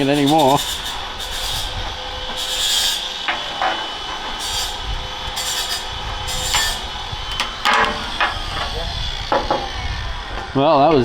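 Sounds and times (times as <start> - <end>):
hand tool scraping steel: 0.0 - 8.8
sharp knocks on metal: 7.3 - 8.7.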